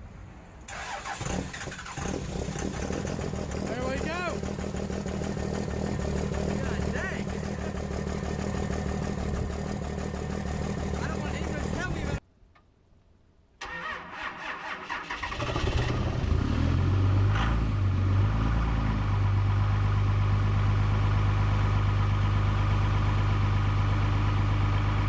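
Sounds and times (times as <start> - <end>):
diesel engine idling: 1.7 - 12.2, 19.0 - 25.0.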